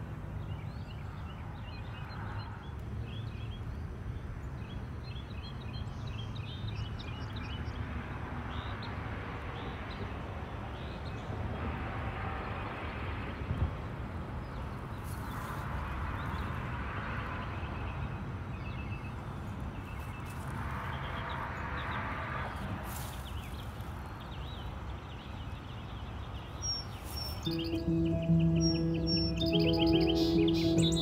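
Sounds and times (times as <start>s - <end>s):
small birds chirping and singing: 23.1s - 31.0s.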